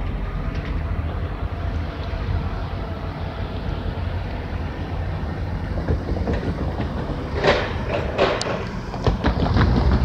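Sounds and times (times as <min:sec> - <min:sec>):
diesel train rumbling: 0:00.0 - 0:10.0
sharp clacks: 0:05.9 - 0:10.0.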